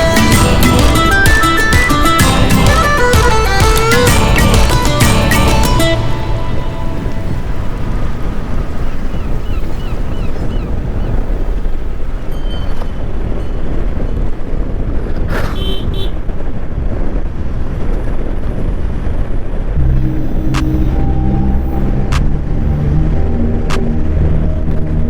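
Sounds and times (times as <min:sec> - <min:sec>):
motorcycle riding: 0:00.0 - 0:25.0
vehicle horn honking: 0:15.5 - 0:16.3.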